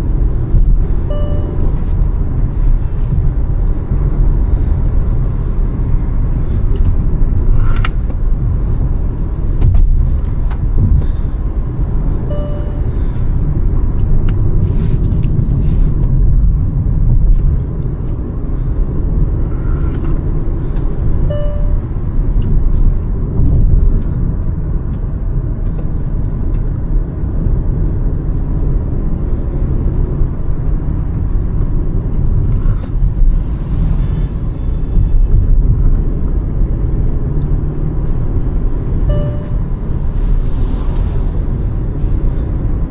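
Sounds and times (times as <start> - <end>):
car engine and road noise: 0.0 - 42.9
faint short beeps: 1.1 - 1.8, 12.3 - 13.0, 21.3 - 21.9, 39.1 - 39.7.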